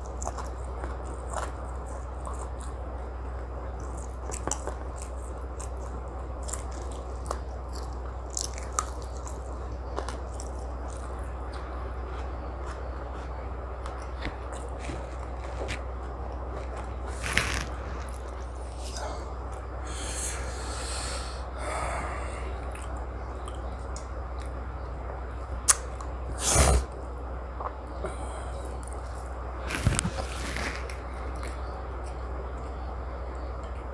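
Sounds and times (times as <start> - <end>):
chewing and biting: 0.0 - 19.8, 25.2 - 32.8
steady low hum: 0.0 - 33.9
small crunches: 3.8 - 19.6, 27.6 - 32.8
soft hissing: 17.1 - 22.4.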